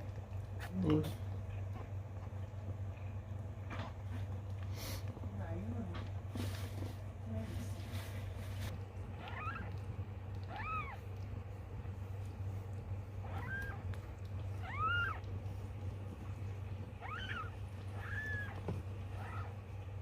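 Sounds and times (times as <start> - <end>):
steady low hum: 0.0 - 20.0
kitten mewing: 9.1 - 11.0, 13.2 - 15.3, 16.9 - 19.6.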